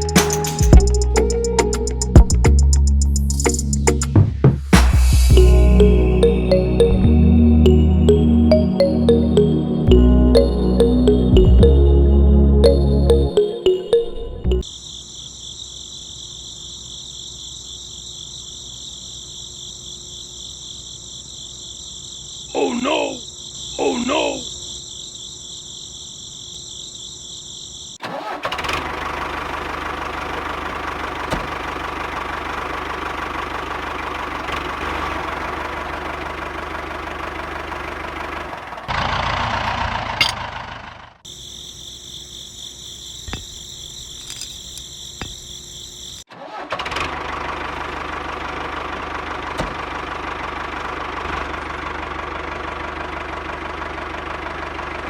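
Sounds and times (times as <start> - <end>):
crickets chirping: 14.6 - 28.4, 41.2 - 46.3
small tractor motor running: 28.0 - 41.1, 46.4 - 55.0.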